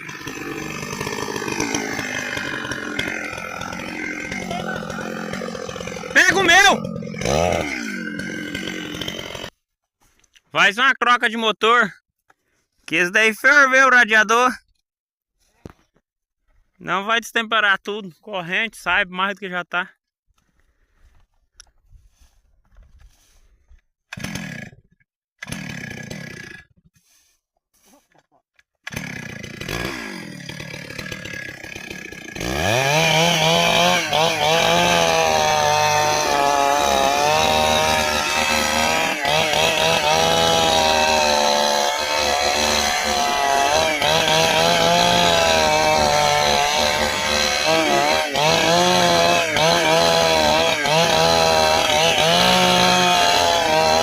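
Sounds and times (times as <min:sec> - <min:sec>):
chainsaw cutting wood: 0:00.0 - 0:09.6, 0:24.0 - 0:27.9, 0:28.6 - 0:54.0
chainsaw running: 0:00.0 - 0:09.6, 0:24.1 - 0:27.9, 0:28.6 - 0:54.0.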